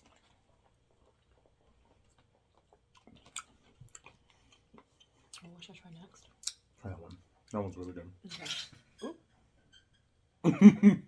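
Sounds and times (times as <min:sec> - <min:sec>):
chewing and mouth sounds: 0:00.0 - 0:08.6.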